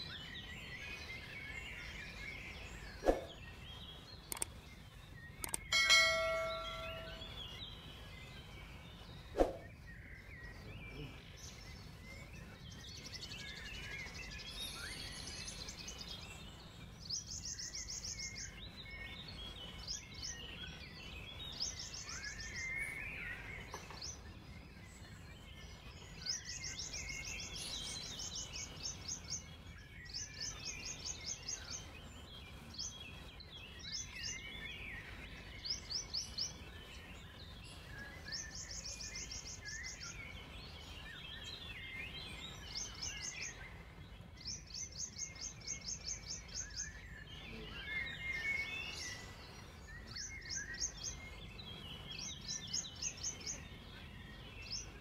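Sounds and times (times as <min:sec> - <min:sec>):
low background noise: 0:00.0 - 0:55.0
low warbling bird chirps: 0:00.0 - 0:55.0
bird high rapid trill: 0:05.4 - 0:07.6.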